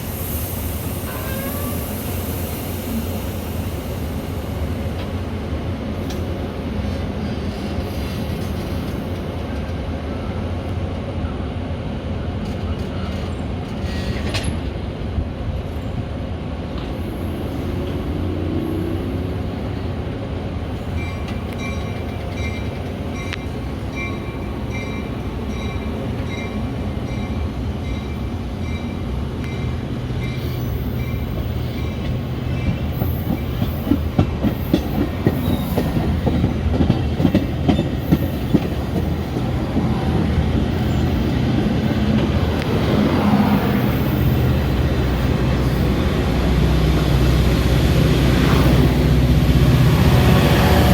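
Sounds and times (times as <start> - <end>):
train rumble: 0.0 - 50.9
train wheels clacking on rails: 20.7 - 50.9.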